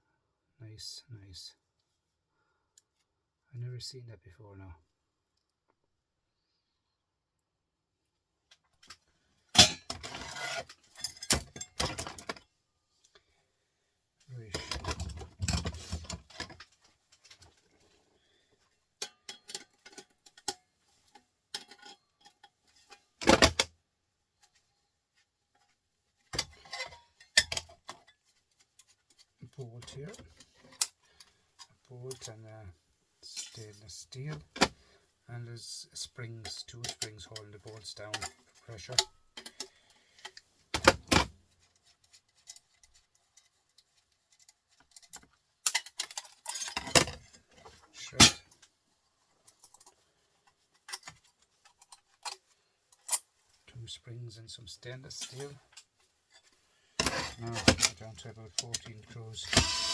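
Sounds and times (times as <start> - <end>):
metal scrap clattering: 57.0 - 58.0.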